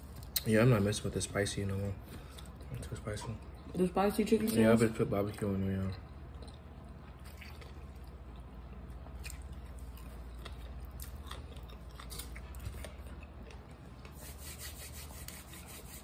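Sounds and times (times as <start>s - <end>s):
low steady hum: 0.0s - 16.0s
chewing and biting: 6.2s - 14.2s.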